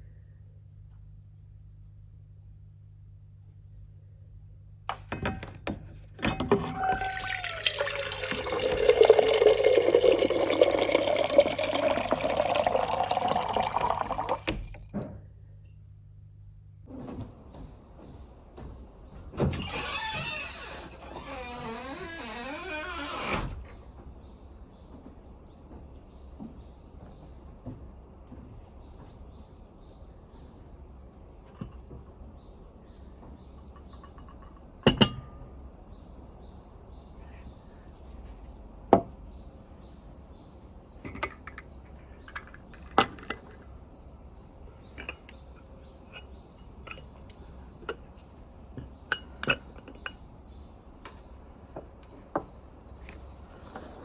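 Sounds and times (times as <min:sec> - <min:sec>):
small birds chirping: 0:35.5 - 0:54.0.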